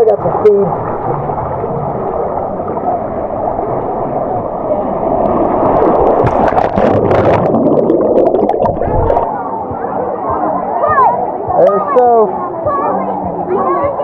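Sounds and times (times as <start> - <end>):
water rushing down slide: 0.5 - 9.3
sharp water splashing: 5.2 - 9.3.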